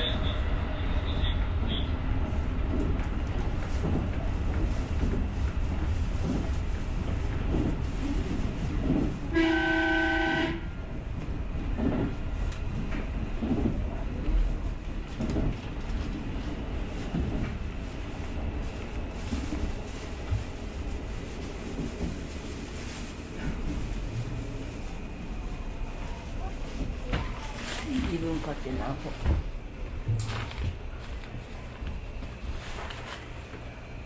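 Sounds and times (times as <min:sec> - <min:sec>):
train wheels rumbling on rail: 0:00.0 - 0:34.0
train horn chord: 0:09.3 - 0:10.6.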